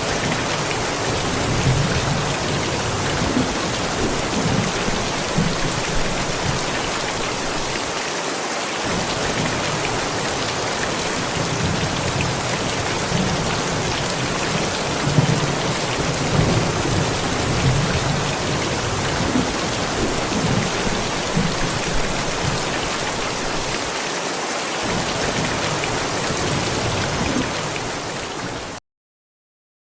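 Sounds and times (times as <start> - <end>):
low thunder rumbling: 0.0 - 7.7, 8.9 - 23.7
heavy rain: 0.0 - 28.8.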